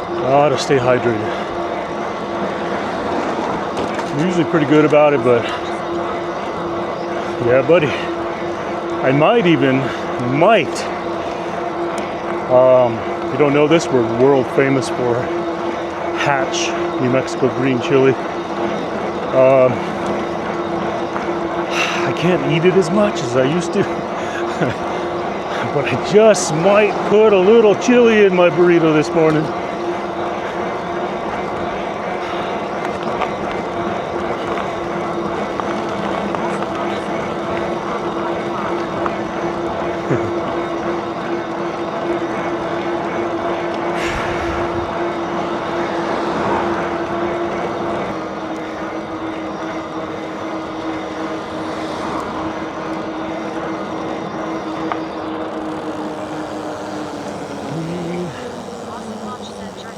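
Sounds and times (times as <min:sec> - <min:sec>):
e-bike rolling noise: 0:00.0 - 0:59.9
faint steady hum: 0:00.0 - 0:59.9
rushing wind: 0:42.4 - 0:59.9
wind noise: 0:44.0 - 0:45.6
electric motor humming: 0:53.0 - 0:59.9
tyre noise: 0:54.7 - 0:59.9.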